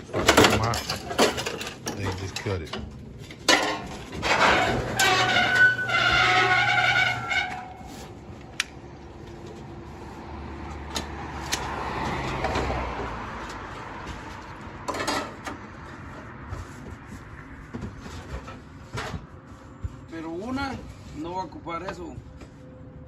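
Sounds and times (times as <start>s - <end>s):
metal rattle: 0.1s - 7.9s.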